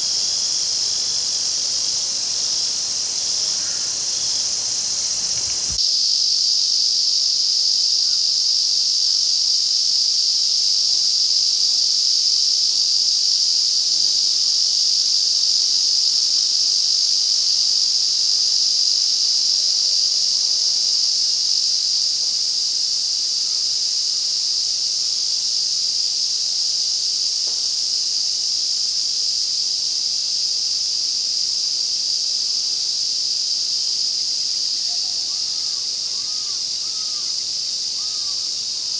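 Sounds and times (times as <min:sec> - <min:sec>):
cicadas buzzing: 0:00.0 - 0:05.8, 0:34.8 - 0:38.9.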